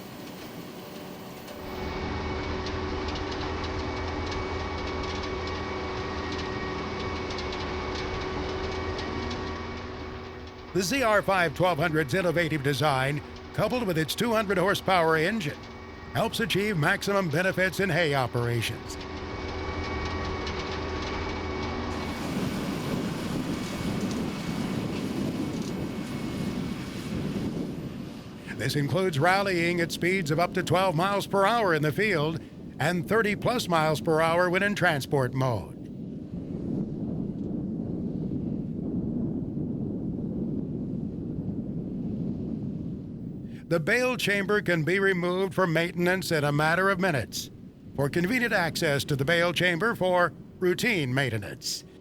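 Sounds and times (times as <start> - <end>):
baler engine hum: 0.0 - 34.3.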